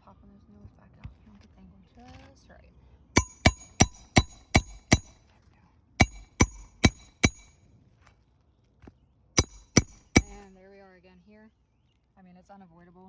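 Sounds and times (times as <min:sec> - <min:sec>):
hammer driving nails into shingles: 0:03.2 - 0:05.2, 0:06.0 - 0:07.6, 0:09.4 - 0:10.5.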